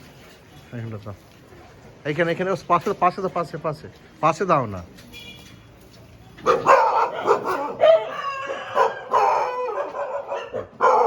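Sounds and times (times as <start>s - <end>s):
dogs barking and yelping: 6.4s - 11.0s.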